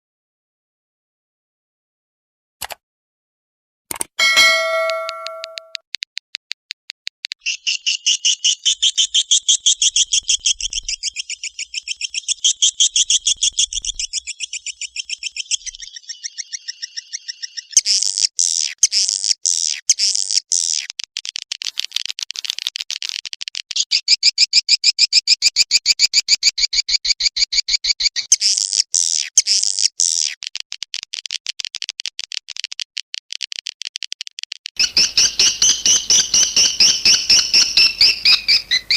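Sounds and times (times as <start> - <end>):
bell-like chime: 4.2 - 5.8.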